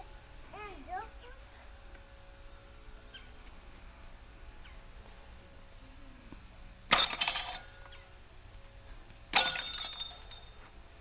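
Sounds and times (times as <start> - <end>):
crashes with shattering ringing: 6.9 - 7.7, 9.4 - 10.5.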